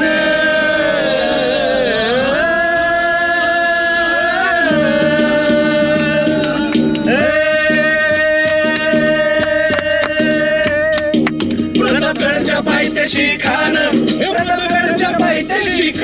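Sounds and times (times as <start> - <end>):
man singing ballad: 2.1 - 11.0
percussion taps: 8.1 - 12.3.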